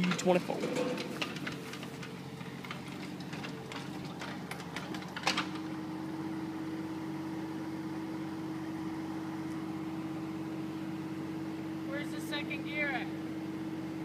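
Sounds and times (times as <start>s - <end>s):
clicks and knocks: 0.0s - 5.6s
excavator diesel engine running: 0.0s - 14.0s.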